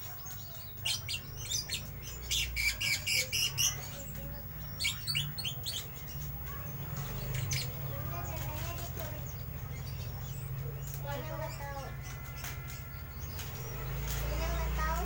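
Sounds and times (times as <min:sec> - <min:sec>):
lovebird chirping and squawking: 0:00.0 - 0:08.6.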